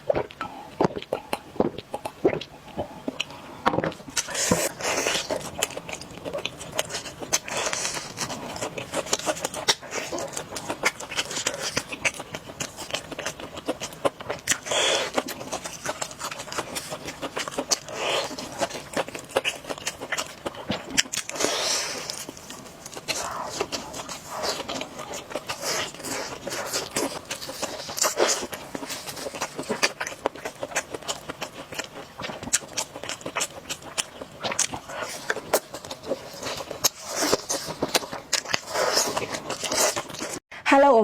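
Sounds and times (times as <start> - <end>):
wet chewing clicks: 0.0 - 40.4
slurping noodles: 21.2 - 31.6, 33.8 - 40.4.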